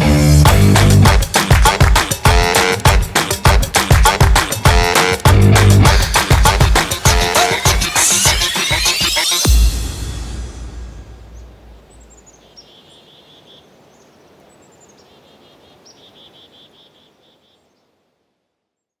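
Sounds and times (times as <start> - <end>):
low musical note: 9.4 - 12.1
faint bird chirping trills: 11.3 - 17.9.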